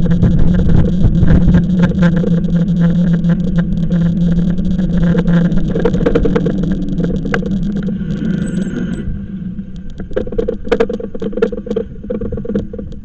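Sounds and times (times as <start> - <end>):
electric bike motor hum: 0.0 - 13.0.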